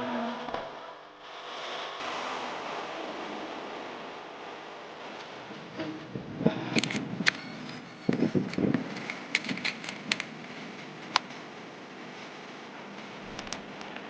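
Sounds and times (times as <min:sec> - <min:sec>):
steady hiss: 0:01.2 - 0:14.0
small hard parts clicking: 0:06.7 - 0:11.2.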